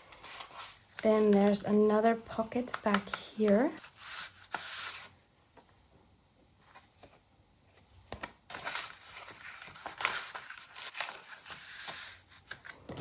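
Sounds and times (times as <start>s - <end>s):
paper rustling and crinkling: 0.0s - 5.1s, 8.1s - 13.0s.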